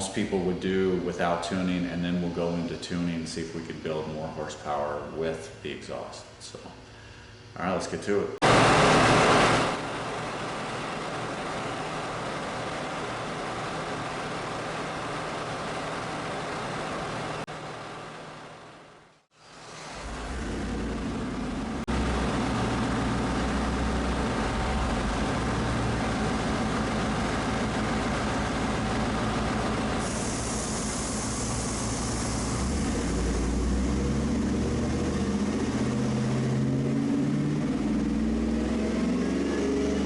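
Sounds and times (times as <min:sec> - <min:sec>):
truck engine running at low speed: 0:08.4 - 0:40.0
steady hiss: 0:19.3 - 0:34.2.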